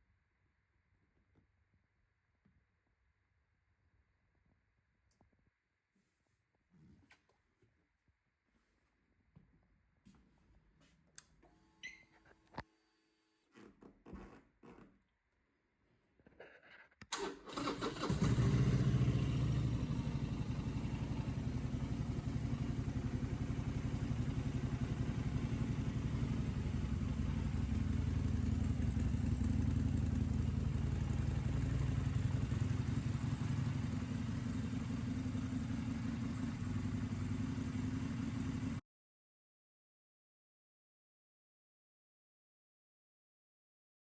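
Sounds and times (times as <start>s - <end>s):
motorcycle starter cranking: 17.1s - 19.0s
motorcycle engine idling: 17.5s - 38.8s.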